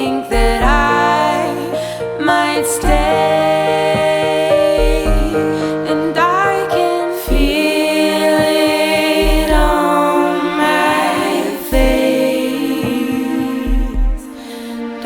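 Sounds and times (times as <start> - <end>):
held vocal notes over chords: 0.0 - 15.0
low drum thumps: 0.3 - 1.6, 2.8 - 6.5, 7.3 - 7.8, 8.4 - 10.0, 11.7 - 12.1, 12.8 - 14.4.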